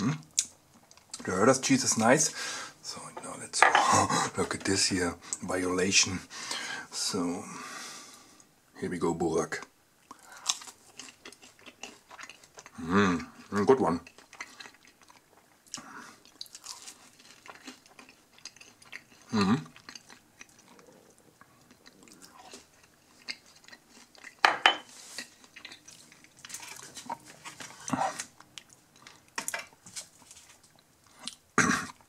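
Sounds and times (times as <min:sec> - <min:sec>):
wet chewing and mouth sounds: 0:10.0 - 0:32.0.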